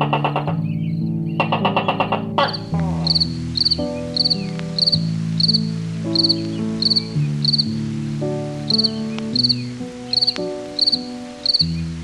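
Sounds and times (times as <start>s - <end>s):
background music of low notes: 0.0s - 12.0s
insect chirping: 2.4s - 12.0s.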